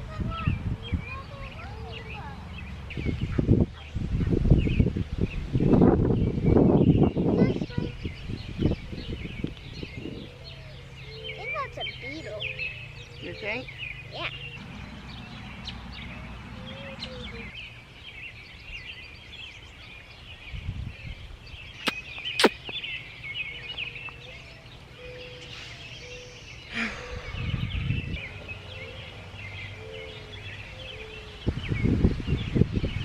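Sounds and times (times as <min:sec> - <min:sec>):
birds chirping: 0:00.0 - 0:33.0
sharp clicks: 0:21.8 - 0:22.8.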